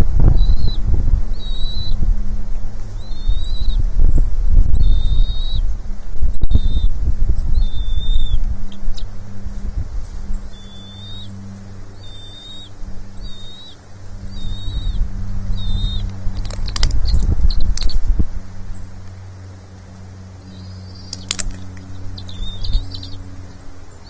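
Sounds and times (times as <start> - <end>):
steady low hum: 0.0 - 24.0
eagle high chirping calls: 0.4 - 2.0, 2.9 - 3.9, 4.7 - 5.8, 6.5 - 9.3, 10.1 - 18.1, 20.4 - 24.0
sharp clicks and knocks: 16.0 - 18.0, 21.1 - 22.0.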